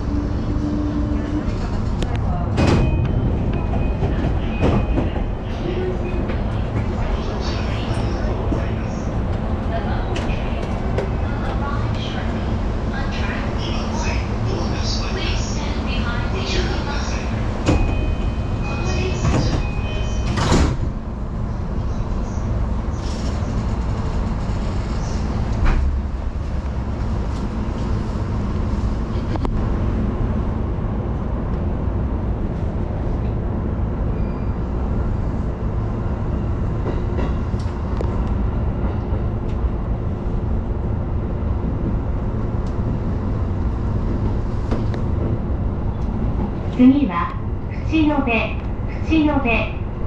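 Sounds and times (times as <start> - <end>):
train wheels rumbling on rail: 0.0 - 50.0
train doors knocking shut: 2.5 - 5.3, 17.6 - 18.1, 19.1 - 21.0.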